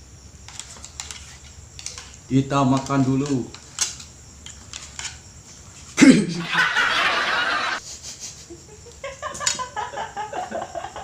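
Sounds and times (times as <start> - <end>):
people laughing: 6.0 - 11.0.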